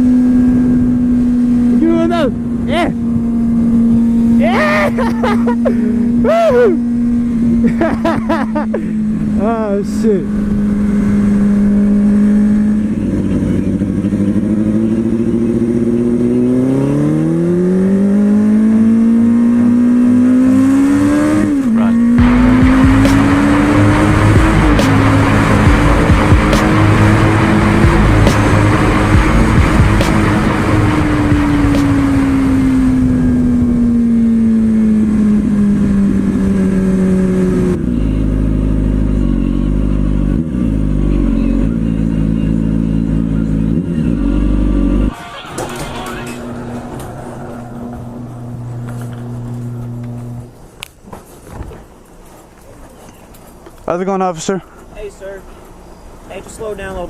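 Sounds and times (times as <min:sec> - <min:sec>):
motorcycle engine revving: 0:00.0 - 0:50.6.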